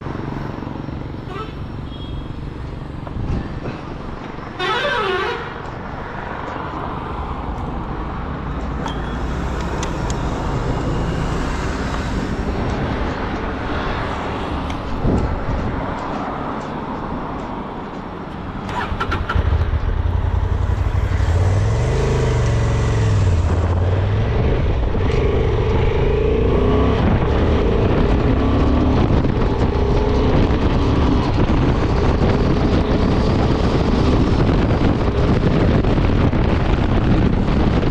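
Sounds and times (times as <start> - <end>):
wind and road rush: 0.0 - 37.9
motorcycle engine and exhaust: 8.1 - 16.1, 18.6 - 37.9.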